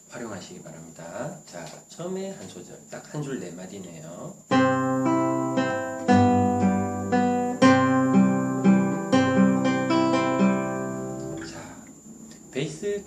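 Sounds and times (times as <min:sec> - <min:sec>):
classical guitar fingerpicked: 0:04.5 - 0:11.6.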